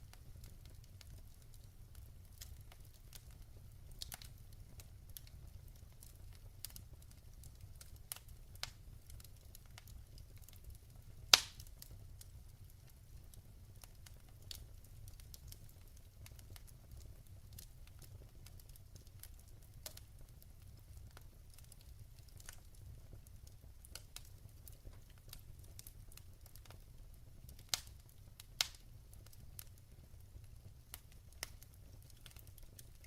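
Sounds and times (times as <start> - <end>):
fire popping: 0.0 - 33.0
wood fire crackling: 0.0 - 33.0.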